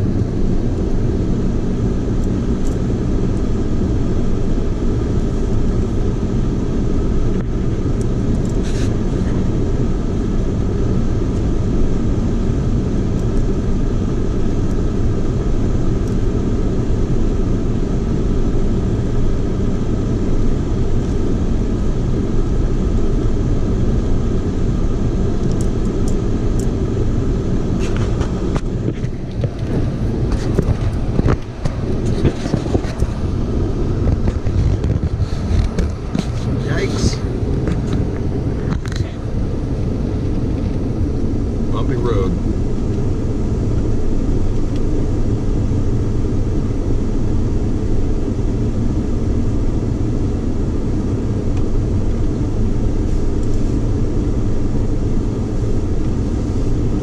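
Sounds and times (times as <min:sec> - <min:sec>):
car engine and tyre rumble: 0:00.0 - 0:57.0
rocks clicking under tyres: 0:25.4 - 0:27.0, 0:27.8 - 0:39.2.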